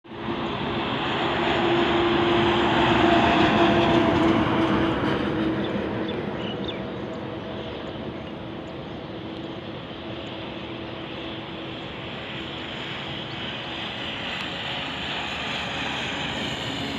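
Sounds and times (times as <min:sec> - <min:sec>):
heavy vehicle passing: 0:00.1 - 0:07.7.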